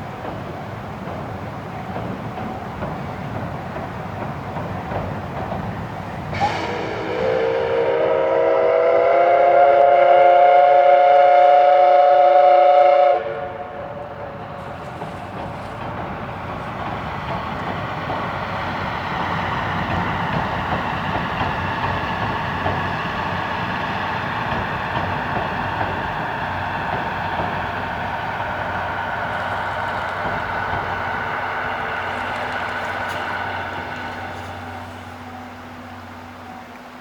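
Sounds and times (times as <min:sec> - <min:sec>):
train running: 0:00.0 - 0:37.0
steam locomotive whistle: 0:06.3 - 0:15.0, 0:28.8 - 0:37.0.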